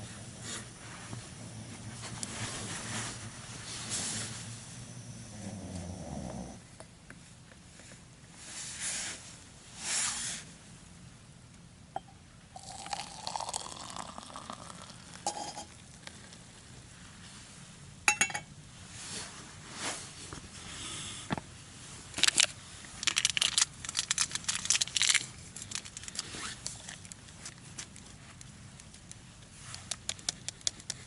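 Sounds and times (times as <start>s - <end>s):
cups and utensils clinking: 12.0s - 15.8s, 18.1s - 18.5s
packaging crinkling and tearing: 22.1s - 28.0s.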